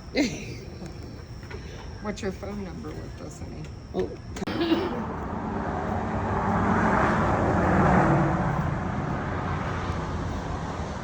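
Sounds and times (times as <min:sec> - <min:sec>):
car driving past: 0:05.0 - 0:11.0.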